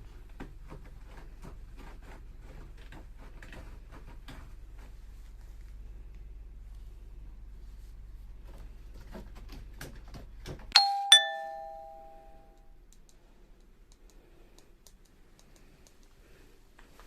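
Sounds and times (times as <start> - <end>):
two-note doorbell chime: 10.8 - 12.5.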